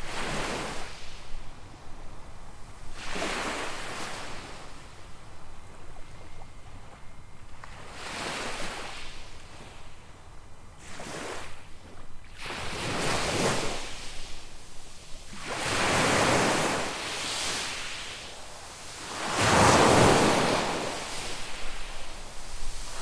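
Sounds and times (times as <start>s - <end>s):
waves breaking on sandy beach: 0.0s - 1.5s, 2.9s - 4.8s, 7.6s - 9.7s, 10.8s - 23.0s.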